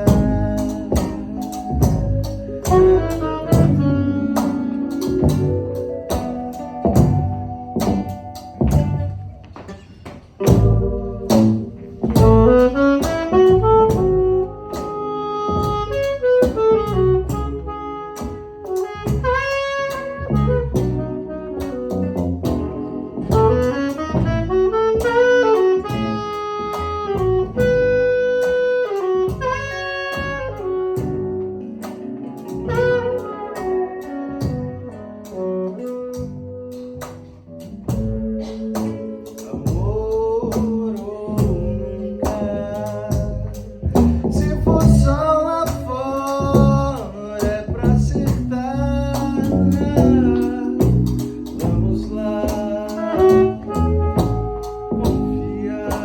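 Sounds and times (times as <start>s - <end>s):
drums and cymbals: 0.0s - 9.0s, 10.2s - 14.2s
melodic lead line: 0.0s - 9.6s
bass: 0.0s - 56.0s.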